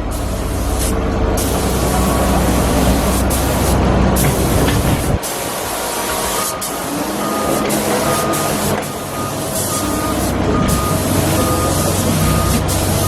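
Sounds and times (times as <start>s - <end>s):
engine running: 0.0s - 13.0s
vehicle back-up alarm beeping: 6.2s - 13.0s.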